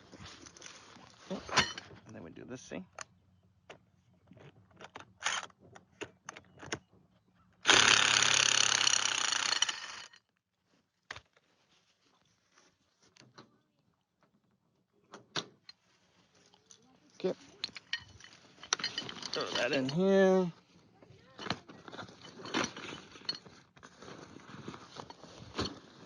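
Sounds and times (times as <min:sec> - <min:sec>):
handheld drill running: 0:07.6 - 0:10.2
metal clicks and clinks: 0:16.5 - 0:20.2.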